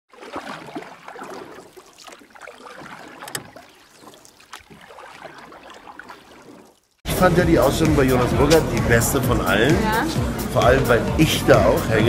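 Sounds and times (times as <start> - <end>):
water sloshing and splashing: 0.1 - 7.0.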